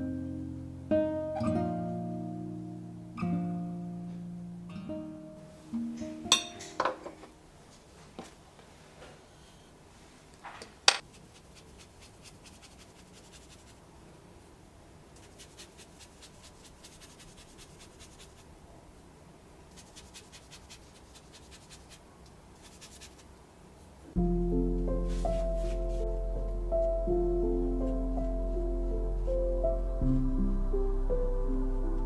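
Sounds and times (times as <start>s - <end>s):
painting tool scratching paper: 11.0s - 13.8s, 15.2s - 18.5s, 19.7s - 22.0s, 22.6s - 23.4s, 25.1s - 26.1s.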